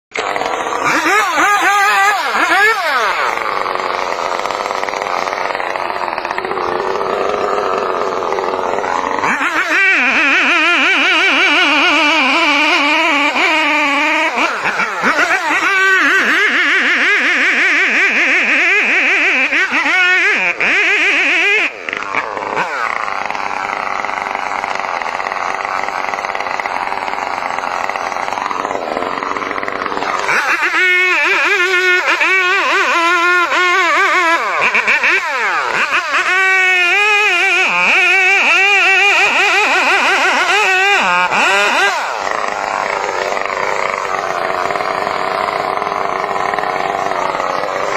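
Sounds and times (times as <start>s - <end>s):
chainsaw engine revving: 0.1s - 47.9s.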